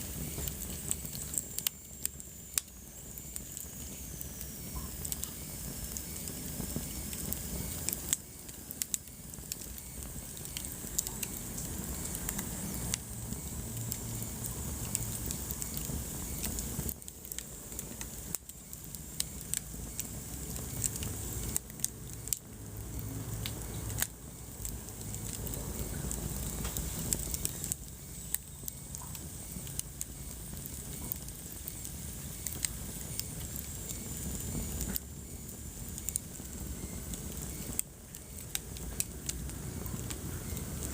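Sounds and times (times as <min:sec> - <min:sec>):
fire crackling in fireplace: 0:00.0 - 0:40.9
low rumble of flames: 0:00.0 - 0:40.9
sharp pops of fire: 0:00.0 - 0:40.9.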